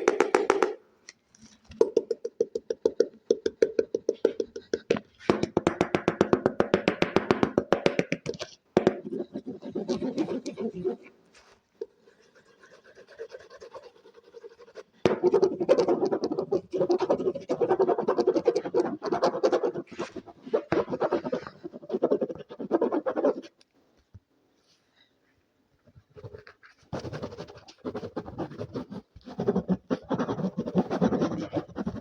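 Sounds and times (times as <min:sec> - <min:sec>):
rapid scratching: 0:09.0 - 0:11.1, 0:12.1 - 0:23.6, 0:26.1 - 0:32.0.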